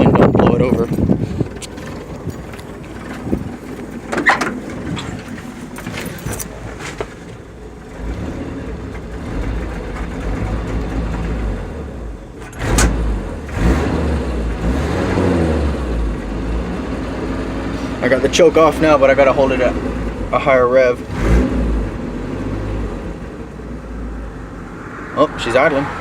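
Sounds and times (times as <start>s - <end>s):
truck engine revving: 7.8s - 26.0s.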